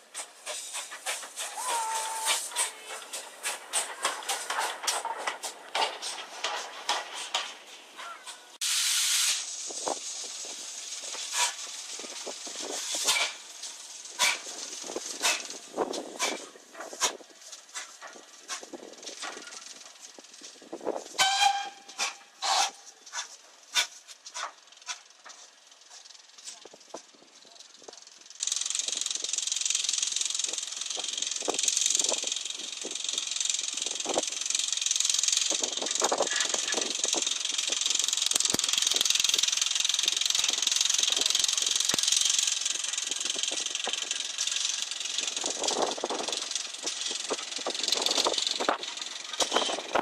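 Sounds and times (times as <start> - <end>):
burst of escaping steam: 0.0 - 3.7, 8.6 - 15.6
steam locomotive hissing: 0.0 - 24.6.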